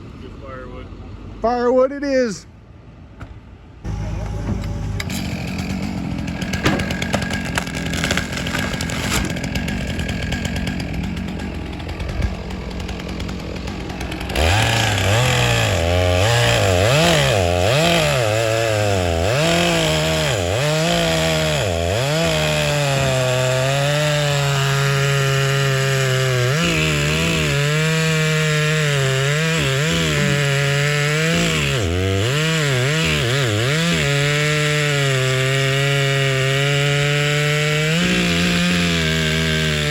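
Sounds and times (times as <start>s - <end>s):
rough engine noise with clicks: 3.2s - 9.5s
chainsaw cutting logs: 3.9s - 39.9s.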